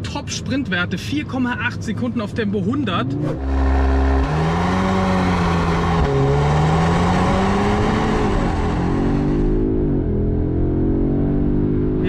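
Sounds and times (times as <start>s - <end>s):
car engine accelerating hard: 2.8s - 12.0s.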